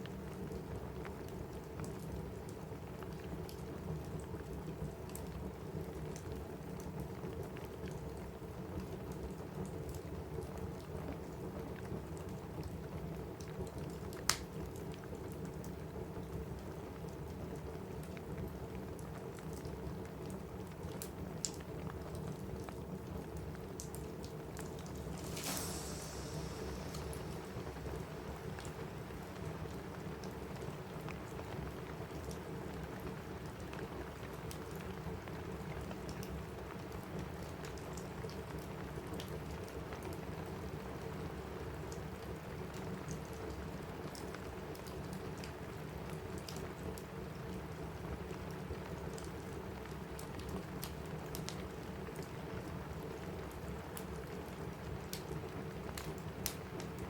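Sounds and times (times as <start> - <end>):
rain on a roof: 0.0 - 57.0
wood fire crackling: 0.3 - 36.8, 48.6 - 57.0
fire crackling: 20.2 - 33.9
brief hissing: 24.9 - 28.3.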